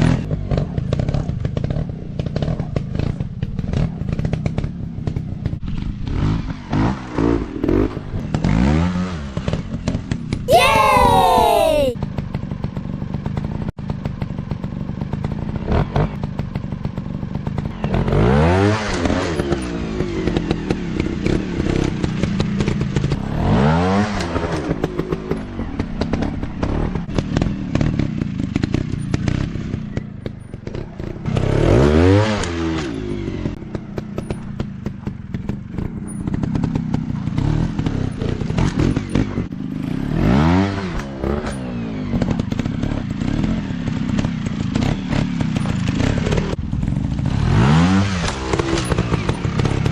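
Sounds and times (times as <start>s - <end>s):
motorcycle engine revving: 30.6s - 49.9s.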